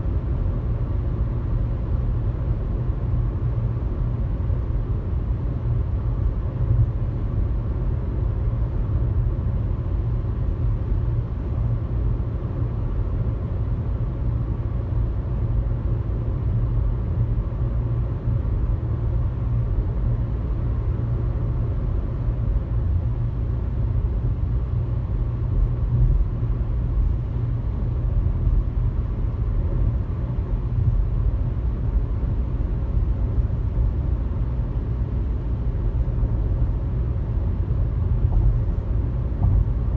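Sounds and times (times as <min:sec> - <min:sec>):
car engine and tyre road noise: 0:00.0 - 0:39.9.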